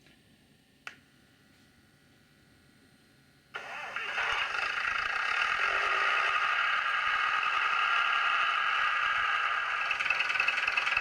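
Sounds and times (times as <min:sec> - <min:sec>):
diesel engine starting and idling: 0:03.6 - 0:11.0.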